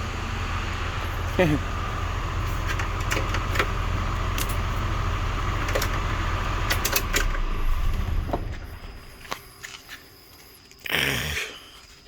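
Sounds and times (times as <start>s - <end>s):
fan whirring: 0.0s - 9.6s
truck engine idling: 0.0s - 10.2s.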